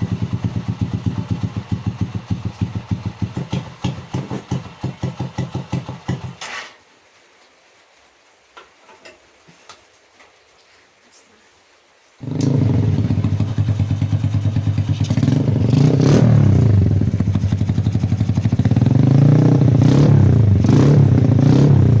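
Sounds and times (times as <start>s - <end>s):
motorcycle engine idling and revving: 0.0s - 6.4s, 12.2s - 22.0s.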